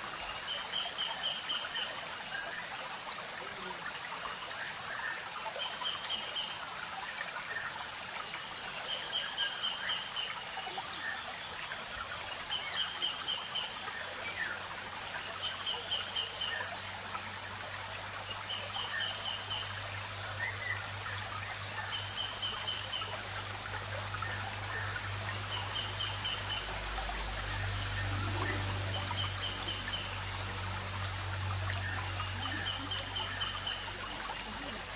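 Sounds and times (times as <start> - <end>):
stream trickling and babbling: 0.0 - 34.9.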